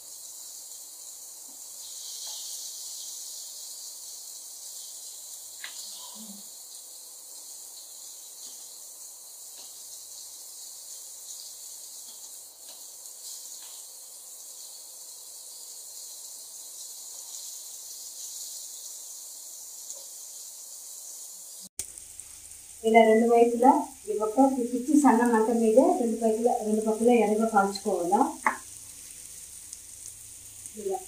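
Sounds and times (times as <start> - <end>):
fish sizzling in hot oil: 0.0 - 31.0
oil spatter ticks: 21.8 - 22.3.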